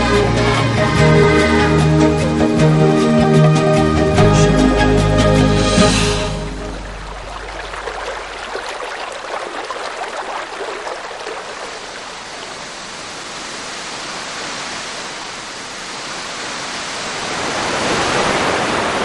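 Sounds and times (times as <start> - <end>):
rushing water: 0.0 - 19.0
water splashing: 5.7 - 14.1.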